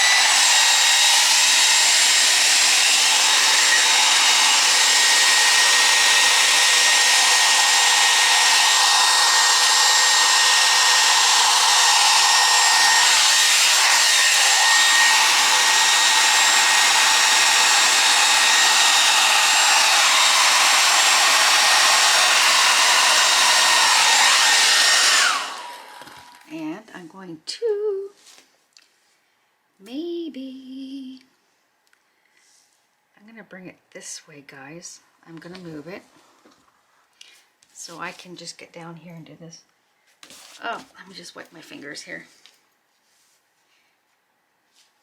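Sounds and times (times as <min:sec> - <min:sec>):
hair dryer blowing: 0:00.0 - 0:26.5.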